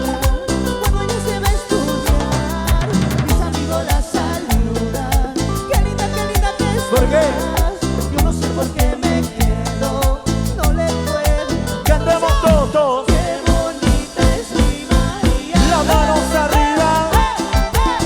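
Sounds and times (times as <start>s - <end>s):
live band dance music: 0.0s - 18.0s.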